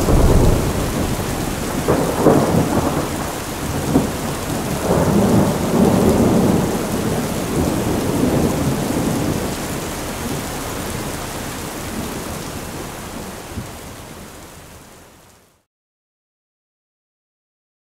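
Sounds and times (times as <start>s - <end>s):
thunder rumbling: 0.0s - 13.8s
heavy rain: 0.0s - 15.7s.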